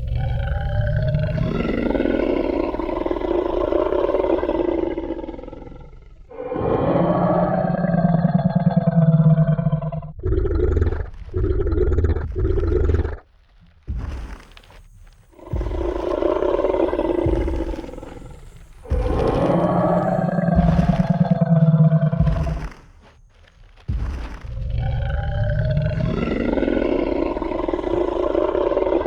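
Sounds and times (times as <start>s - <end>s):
deep roars: 0.0s - 13.2s, 15.4s - 22.7s, 24.6s - 29.0s
heavy footstep thuds: 12.2s - 25.2s.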